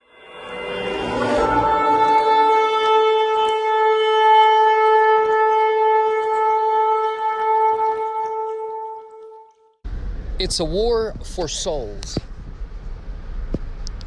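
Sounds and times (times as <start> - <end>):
horn long steady note: 0.0 - 10.6.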